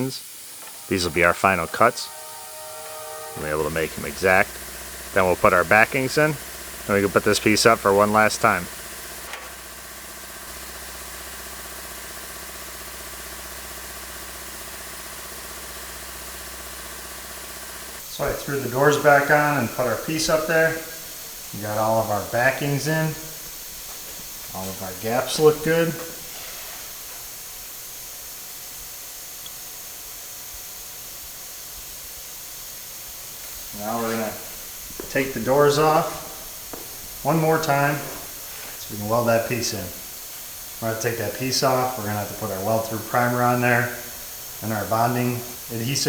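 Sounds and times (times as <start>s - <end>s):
narration: 0.0s - 8.8s, 18.1s - 23.6s, 24.4s - 26.3s, 33.7s - 40.1s, 40.8s - 46.0s
motor humming: 0.0s - 46.0s
steady hiss: 0.0s - 46.0s
tiny tick: 29.4s - 29.6s.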